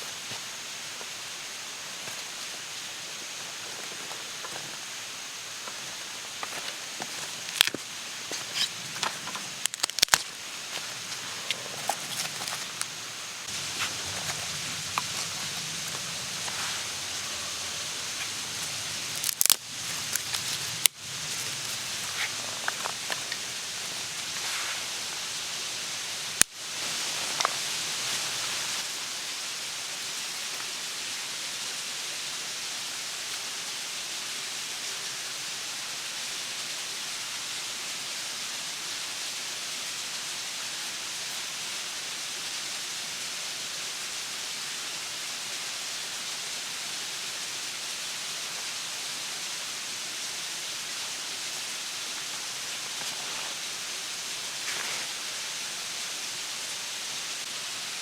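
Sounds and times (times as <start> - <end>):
campfire crackling: 0.0 - 29.1
outdoor hiss: 0.0 - 58.0.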